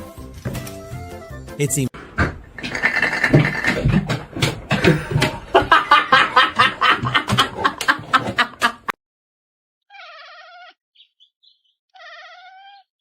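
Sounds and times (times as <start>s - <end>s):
person laughing hard: 4.8s - 8.9s.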